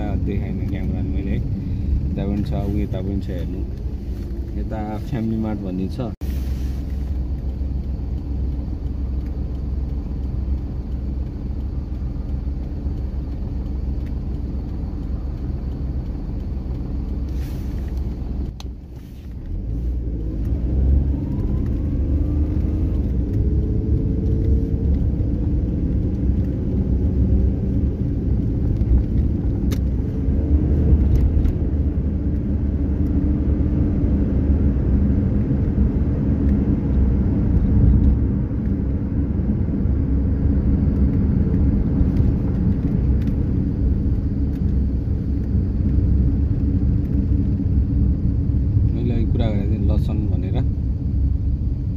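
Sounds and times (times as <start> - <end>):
car engine: 0.0 - 51.9
road rumble: 0.0 - 51.9.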